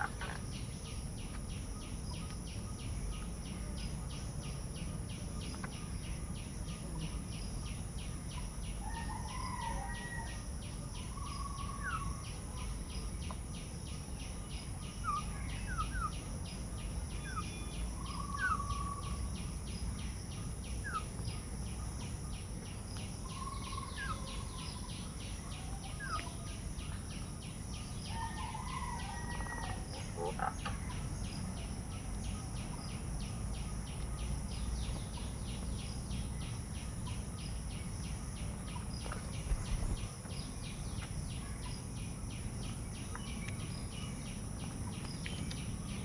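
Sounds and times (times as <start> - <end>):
insect pulsing trill: 0.0 - 46.0
low steady rumble: 29.8 - 46.0.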